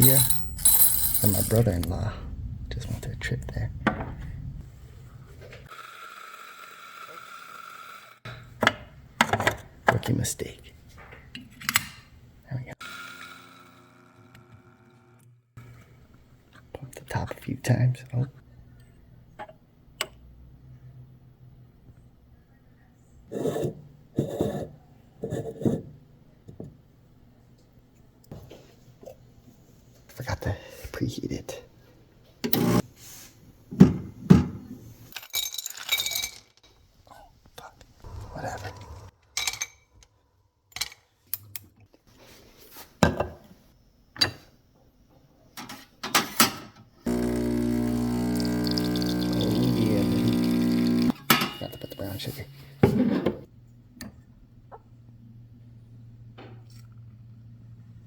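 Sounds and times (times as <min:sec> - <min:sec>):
espresso machine pump hum: 0:32.5 - 0:32.8, 0:47.1 - 0:51.2
milk frother plunger rasping: 0:47.1 - 0:51.2.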